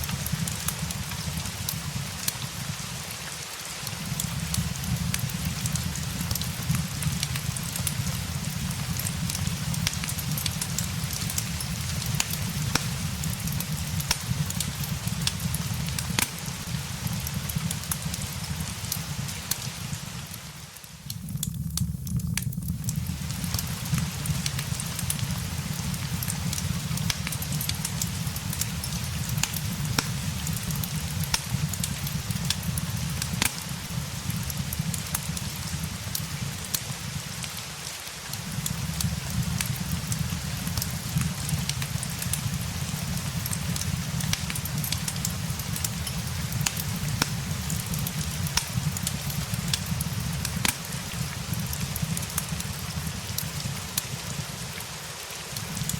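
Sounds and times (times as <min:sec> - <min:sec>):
fireplace crackling: 0:00.0 - 0:55.9
steady rain: 0:00.0 - 0:55.9.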